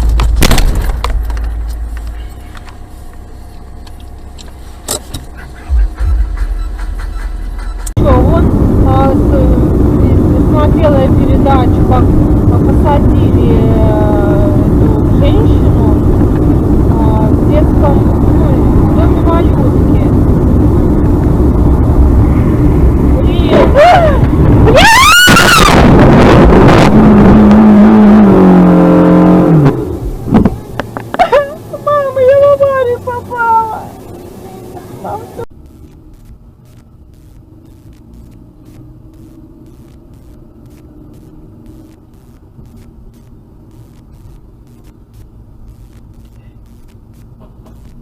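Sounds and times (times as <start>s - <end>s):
car noise: 0.0s - 48.0s
steady held tone: 35.5s - 48.0s.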